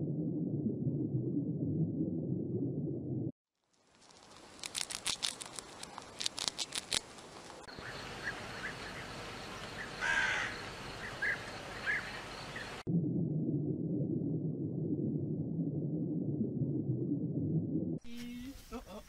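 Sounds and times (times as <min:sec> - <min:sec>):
hamster gnawing: 0:03.9 - 0:07.6
crow cawing: 0:09.9 - 0:12.1.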